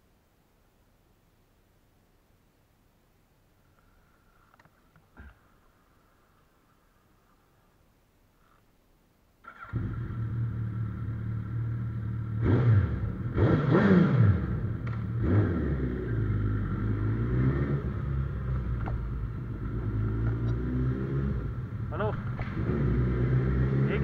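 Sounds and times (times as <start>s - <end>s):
motorcycle engine revving and idling: 9.4s - 24.0s.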